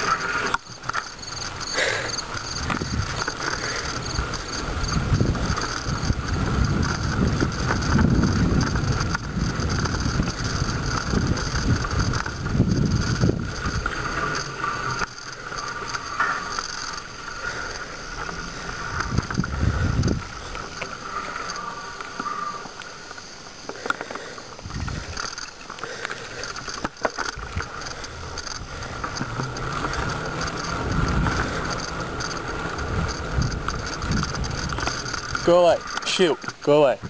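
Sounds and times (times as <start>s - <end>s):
bicycle whir: 0.0s - 37.0s
sharp clicks: 0.0s - 37.0s
wind buffeting microphone: 1.2s - 15.0s, 18.0s - 20.8s, 24.6s - 25.2s, 27.3s - 37.0s.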